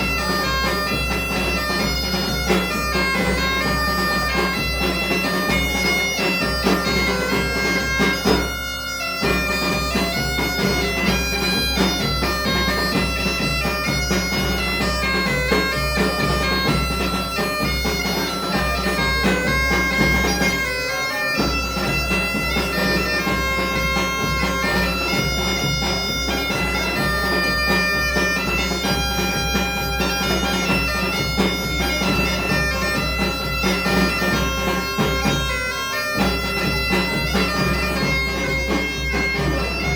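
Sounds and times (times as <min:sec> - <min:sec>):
bagpipe playing over drone: 0:00.0 - 0:39.9
drum beat: 0:00.0 - 0:39.9.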